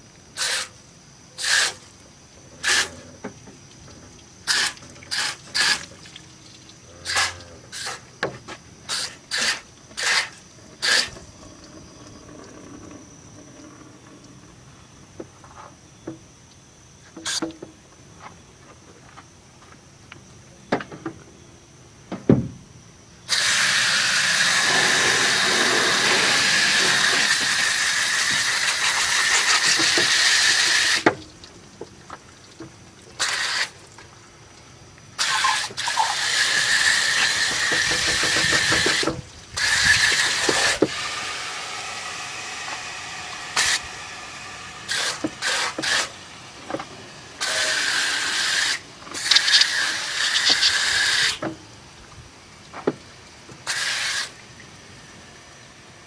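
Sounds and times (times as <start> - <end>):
aerosol can spraying: 23.3 - 31.0, 44.9 - 46.1, 47.4 - 51.4, 53.7 - 54.3.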